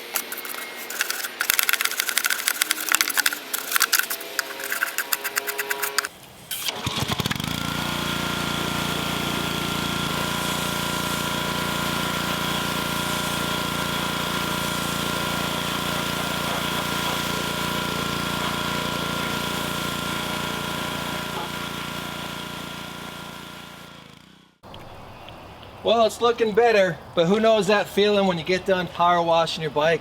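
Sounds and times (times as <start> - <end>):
clicking and rattling: 0.0 - 6.1
pressure washer droning: 0.0 - 24.5
water spray hiss: 8.6 - 20.4.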